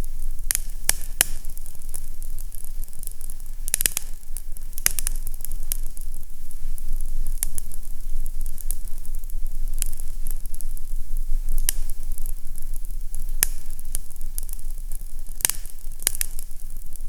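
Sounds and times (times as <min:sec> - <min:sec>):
fireplace fire crackling: 0:00.0 - 0:17.0
low steady rumble: 0:00.0 - 0:17.0
sharp pops: 0:13.2 - 0:14.0.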